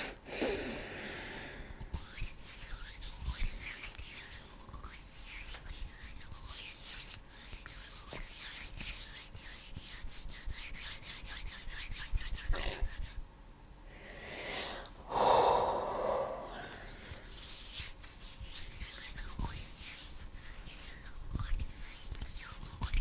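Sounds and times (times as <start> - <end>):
hands rubbing: 1.8 - 13.2, 16.7 - 23.0.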